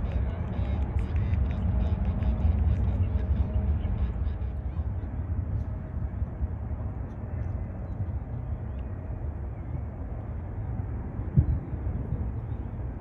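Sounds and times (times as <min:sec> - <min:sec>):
distant jet airliner rumble: 0:00.0 - 0:13.0.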